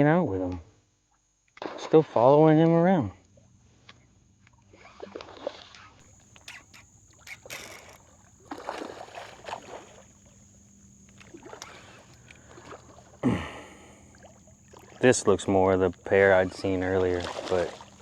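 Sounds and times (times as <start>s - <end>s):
water splashing and sloshing: 4.8s - 18.0s.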